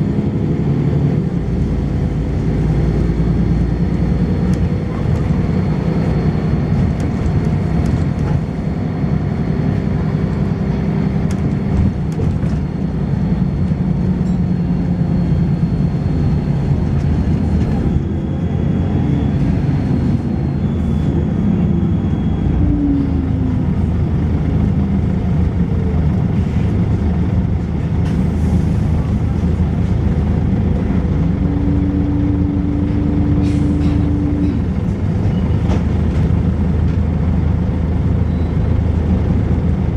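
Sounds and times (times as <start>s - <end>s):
bus engine running: 0.0s - 39.9s
bus body rattle: 11.2s - 18.3s, 32.2s - 39.9s.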